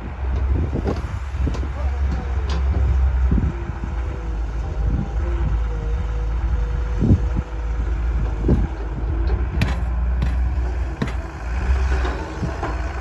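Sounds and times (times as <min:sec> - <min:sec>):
diesel engine rumbling: 0:00.0 - 0:13.0
sharp knocks: 0:09.6 - 0:12.8.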